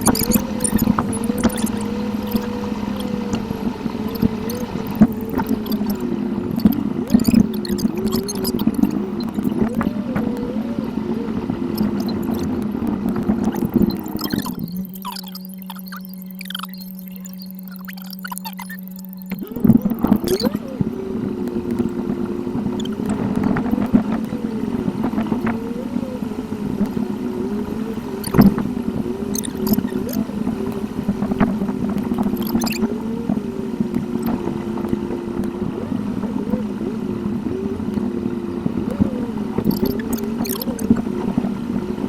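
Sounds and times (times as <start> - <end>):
sharp clicks: 0.0 - 10.6, 11.2 - 25.6, 28.0 - 28.7, 29.3 - 32.9, 38.9 - 41.0
sped-up car engine: 0.0 - 42.0.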